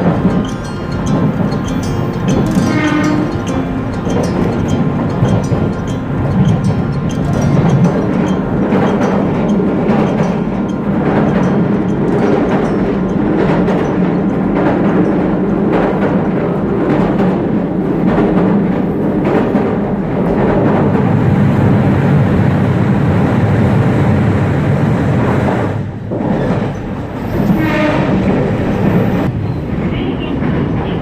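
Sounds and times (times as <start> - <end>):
wheel clicks over rail joints: 0.0 - 21.0
train rumbling along rails: 0.0 - 31.0.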